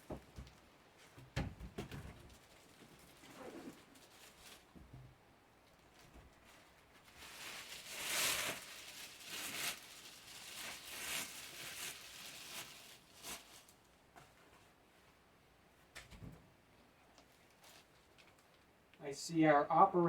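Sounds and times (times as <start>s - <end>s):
packaging rustling and scraping: 2.3s - 4.8s, 5.8s - 14.8s, 17.2s - 18.6s.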